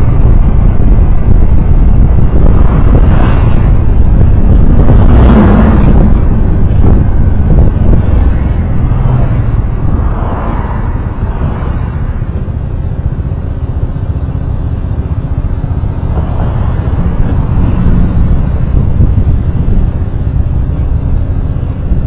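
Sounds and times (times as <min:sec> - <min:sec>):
traffic road noise rumble: 0:00.0 - 0:22.0.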